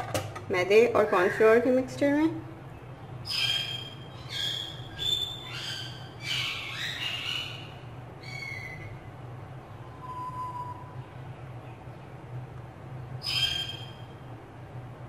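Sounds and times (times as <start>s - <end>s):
steady low hum: 0.0s - 15.0s
birds calling: 2.6s - 9.2s, 13.2s - 14.3s.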